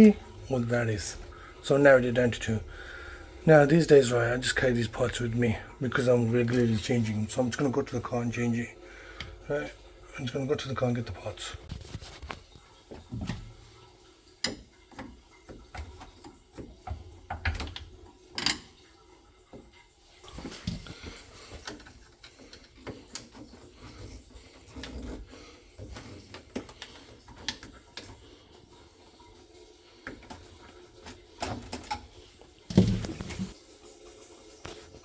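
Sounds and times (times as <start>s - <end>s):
objects being handled: 11.5s - 13.6s, 32.7s - 33.6s.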